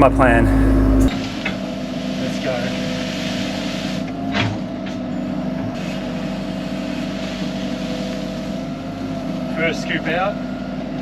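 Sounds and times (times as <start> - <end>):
excavator diesel engine running: 0.0 - 1.4
constant whine: 0.0 - 2.4.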